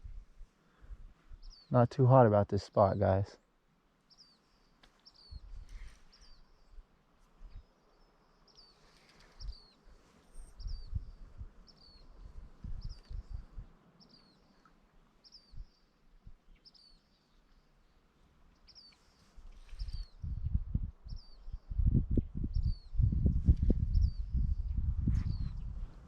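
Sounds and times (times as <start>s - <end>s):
small bird chirping: 7.5s - 17.7s, 18.6s - 23.1s.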